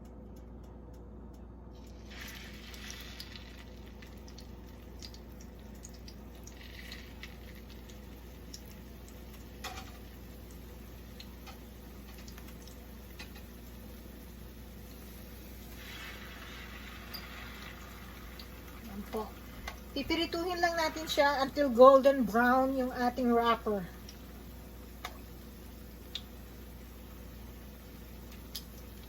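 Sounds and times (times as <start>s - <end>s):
oil crackling and popping: 1.8s - 22.6s, 24.0s - 29.0s
food sizzling in hot oil: 1.9s - 29.0s.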